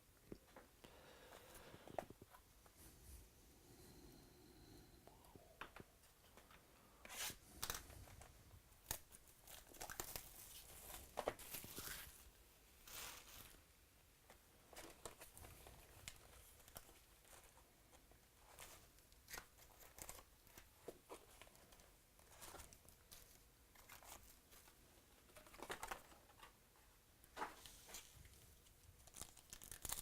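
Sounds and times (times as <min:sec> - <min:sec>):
wrapping tearing and crinkling: 0:08.8 - 0:12.2, 0:28.7 - 0:30.0.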